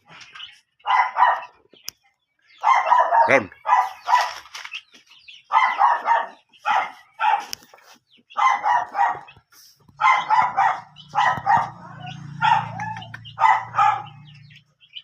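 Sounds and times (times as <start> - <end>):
dog barking: 0.8 - 1.6, 2.6 - 4.4, 5.5 - 7.6, 8.3 - 14.5.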